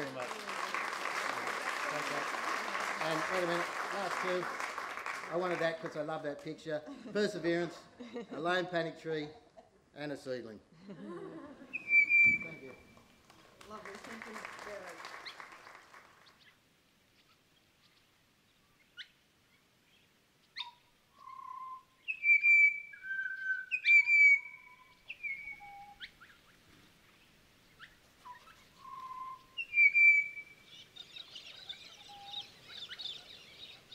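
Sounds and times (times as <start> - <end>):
birds whistling: 11.7 - 13.0, 19.9 - 26.6, 27.7 - 33.9.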